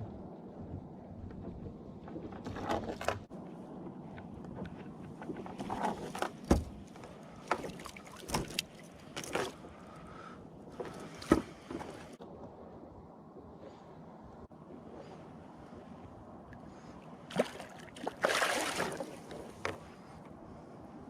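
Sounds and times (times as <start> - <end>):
knocks against kayak hull: 6.5 - 6.8
water swishing: 16.7 - 20.1.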